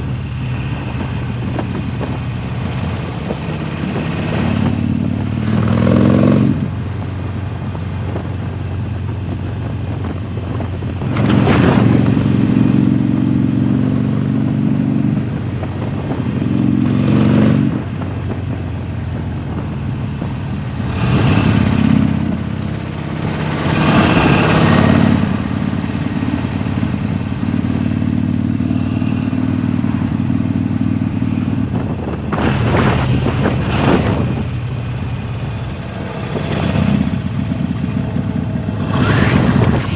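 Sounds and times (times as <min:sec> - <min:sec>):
motorcycle engine running: 0:00.0 - 0:39.9
motorcycle throttle surges: 0:09.0 - 0:39.9.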